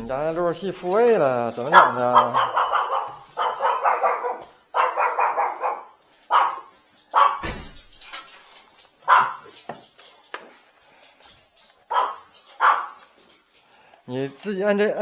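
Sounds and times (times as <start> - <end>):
small dog barking: 1.7 - 7.4, 9.0 - 9.5, 11.9 - 13.0.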